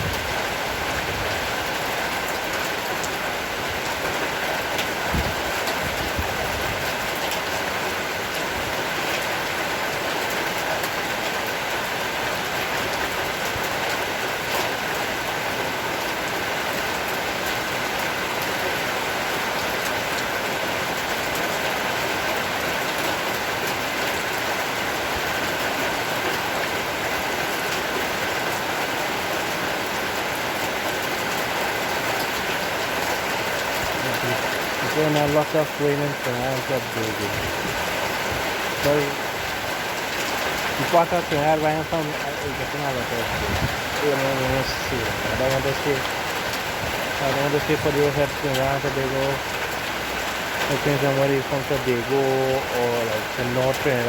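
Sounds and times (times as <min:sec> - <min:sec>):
heavy rain shower: 0:00.0 - 0:54.0
raindrop ticks: 0:03.8 - 0:07.5, 0:31.0 - 0:54.0.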